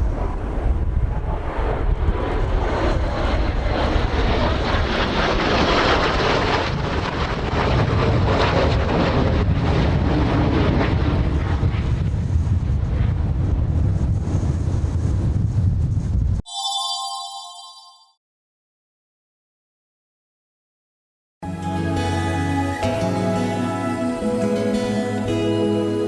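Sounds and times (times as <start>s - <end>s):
jet aircraft passing overhead: 0.0s - 12.0s
wind rumbling on microphone: 0.0s - 16.4s.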